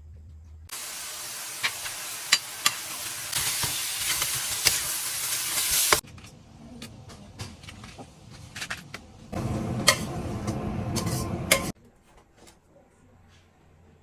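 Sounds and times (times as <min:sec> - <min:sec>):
food sizzling in a hot pan: 0:00.7 - 0:06.0.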